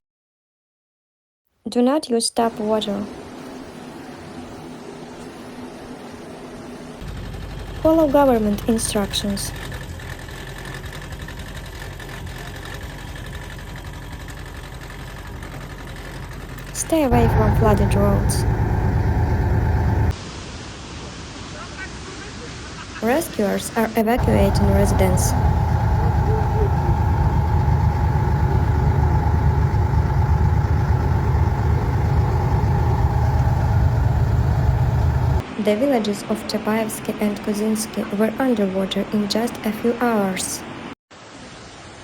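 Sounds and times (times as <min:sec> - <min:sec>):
engine rumble: 0:07.0 - 0:20.1, 0:24.2 - 0:35.4
faint steady whine: 0:16.6 - 0:20.1, 0:24.2 - 0:35.4.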